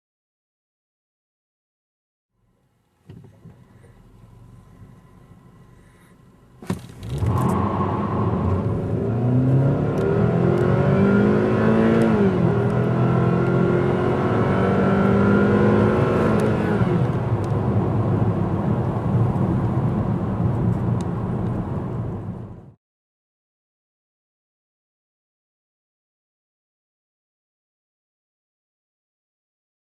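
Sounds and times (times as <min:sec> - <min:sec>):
car engine revving: 0:06.6 - 0:22.6.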